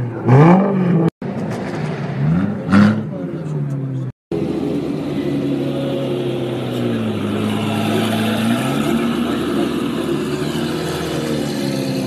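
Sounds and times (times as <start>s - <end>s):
car engine at low revs: 3.1s - 12.0s.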